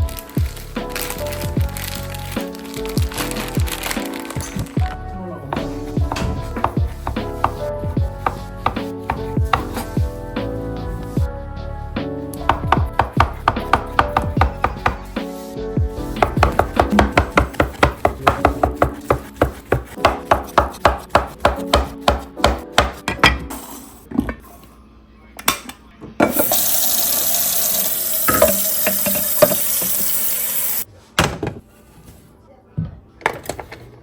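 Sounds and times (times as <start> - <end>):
knife chopping on cutting board: 16.2 - 23.4
kitchen tap running: 26.3 - 30.8.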